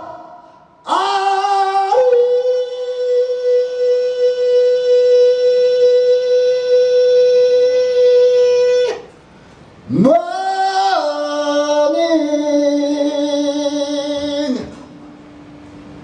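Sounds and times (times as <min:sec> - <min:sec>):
person singing a long note: 0:00.0 - 0:09.1.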